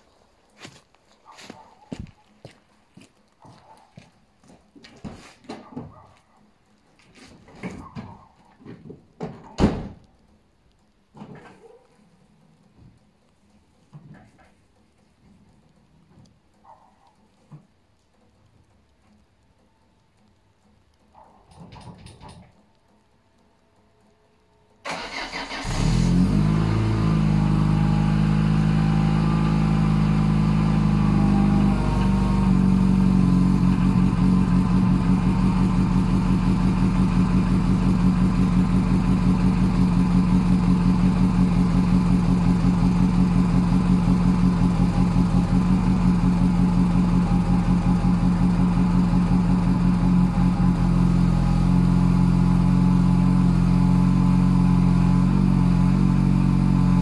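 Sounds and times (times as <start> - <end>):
car engine cranking: 24.8 - 57.0
car engine idling: 24.8 - 57.0.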